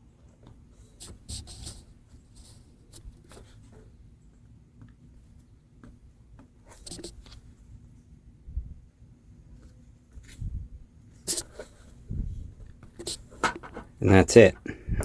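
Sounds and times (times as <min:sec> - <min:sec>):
light rubbing: 0:12.8 - 0:14.6.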